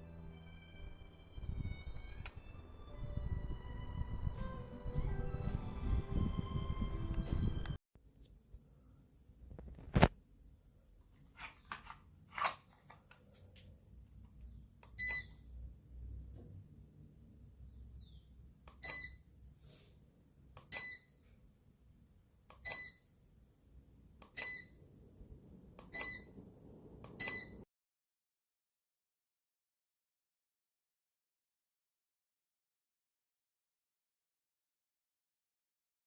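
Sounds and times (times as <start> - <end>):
short high beeps: 15.0 - 15.4, 18.8 - 19.3, 20.7 - 21.1, 22.6 - 23.1, 24.4 - 24.8, 25.9 - 26.4, 27.2 - 27.6.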